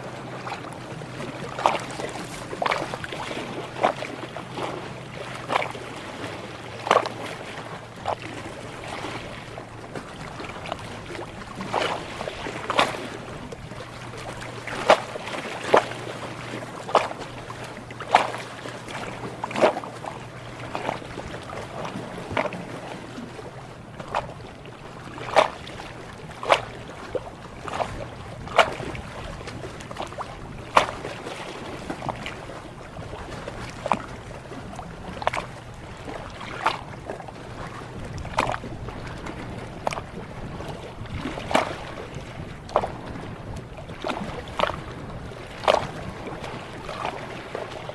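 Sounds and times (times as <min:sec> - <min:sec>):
sharp water splashes: 0:00.0 - 0:23.2, 0:25.1 - 0:32.5
sea water lapping: 0:00.0 - 0:47.9.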